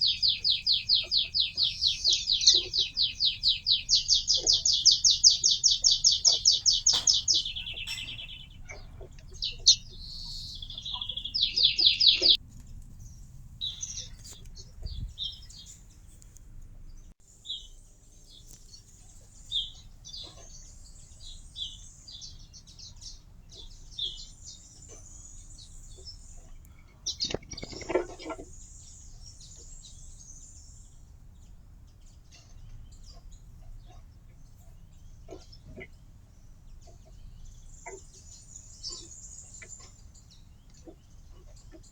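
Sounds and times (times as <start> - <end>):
songbird fast trill: 0.0 - 12.4
bird chirps and twitters: 0.0 - 15.9, 17.5 - 31.0, 32.0 - 41.9.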